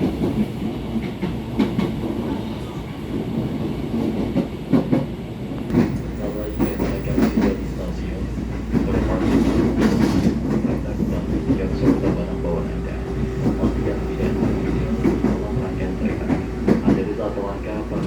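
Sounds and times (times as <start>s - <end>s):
electric train rumbling on rails: 0.0s - 18.0s.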